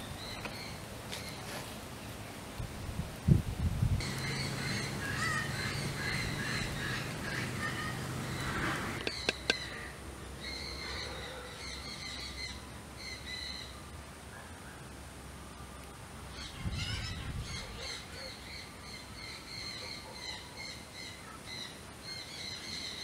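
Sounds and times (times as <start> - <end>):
birds calling: 0.0 - 1.7, 4.0 - 14.9, 15.6 - 23.0
sharp clicks: 9.0 - 9.6.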